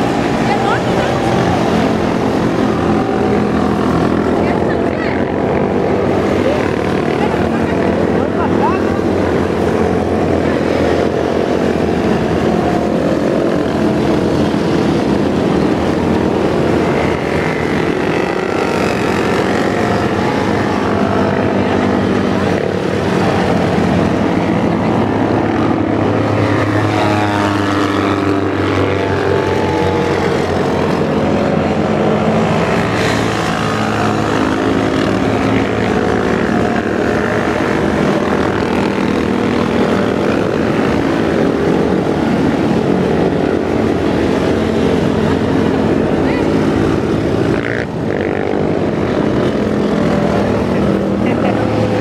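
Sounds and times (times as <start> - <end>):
motorcycles riding past: 0.0 - 52.0.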